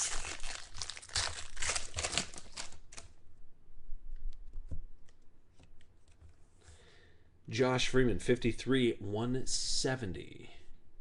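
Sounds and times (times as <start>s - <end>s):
wrapper crinkling and tearing: 0.0s - 3.1s.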